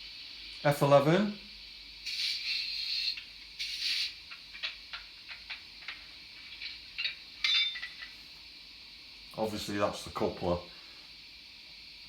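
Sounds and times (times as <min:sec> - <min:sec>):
sharp ringing clank: 0:07.4 - 0:08.1.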